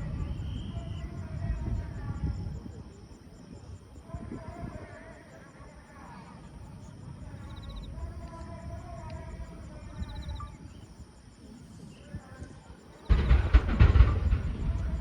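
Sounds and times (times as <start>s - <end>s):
insects chirping: 0.0s - 15.0s
murmur of voices: 0.0s - 15.0s
fireworks bursts and crackling: 13.1s - 15.0s.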